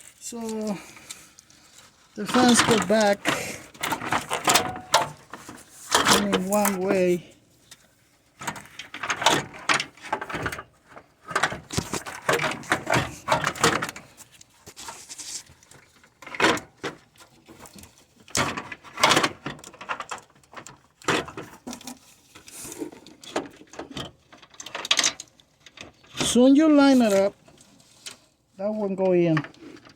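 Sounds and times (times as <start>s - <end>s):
scraping of fan assembly: 0.8s - 7.2s, 8.4s - 28.2s
metal knocks and clunks: 2.3s - 6.7s.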